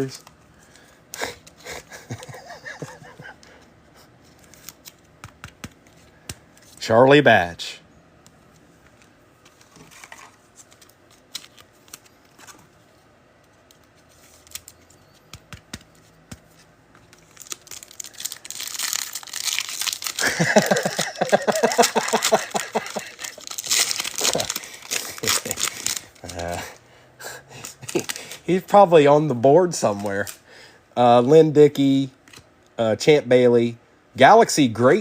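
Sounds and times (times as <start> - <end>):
foil wrapper tearing and crinkling: 17.1 - 26.8, 27.6 - 28.4.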